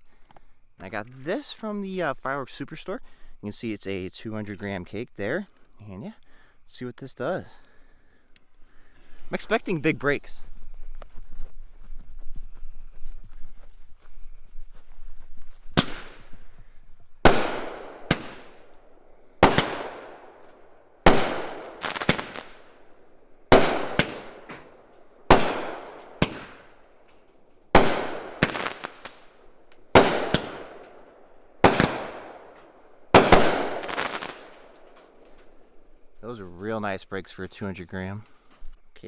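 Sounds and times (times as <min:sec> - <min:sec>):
firework cake bangs with echo: 0:15.8 - 0:16.3, 0:17.3 - 0:18.7, 0:19.4 - 0:20.3, 0:21.1 - 0:22.6, 0:23.5 - 0:26.8, 0:27.8 - 0:29.3, 0:30.0 - 0:31.0, 0:31.6 - 0:32.5, 0:33.2 - 0:34.5.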